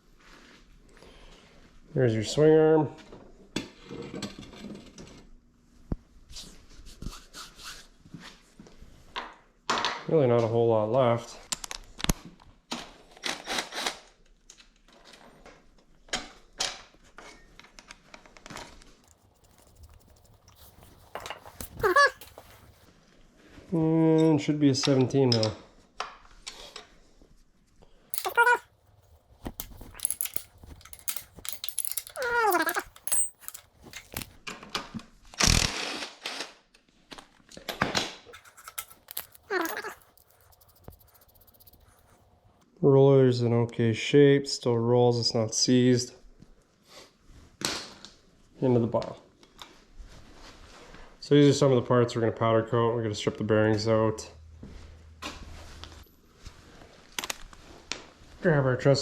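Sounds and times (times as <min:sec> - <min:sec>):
tools and metal parts clattering: 0:19.1 - 0:22.8, 0:28.2 - 0:34.4, 0:38.4 - 0:42.2
dog whining: 0:21.4 - 0:22.8, 0:28.2 - 0:28.7, 0:29.8 - 0:34.2, 0:38.4 - 0:42.1
metallic clicks and knocks: 0:28.2 - 0:28.6, 0:29.4 - 0:34.4, 0:38.4 - 0:41.9.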